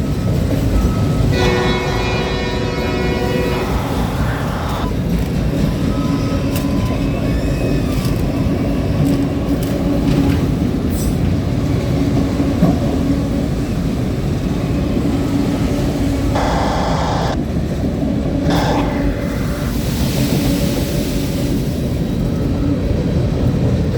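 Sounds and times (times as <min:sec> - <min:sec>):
freight train wheels rumbling: 0:00.0 - 0:23.9
low hum: 0:16.4 - 0:17.4.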